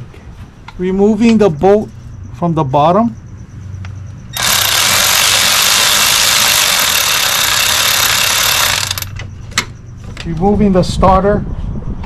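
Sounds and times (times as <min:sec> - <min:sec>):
cordless ratchet running: 0:04.4 - 0:09.2.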